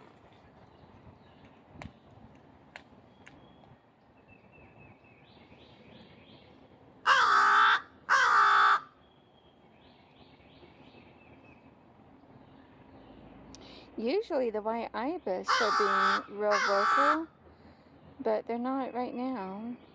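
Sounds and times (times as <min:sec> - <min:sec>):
crow cawing: 0:07.0 - 0:09.0, 0:15.5 - 0:17.3.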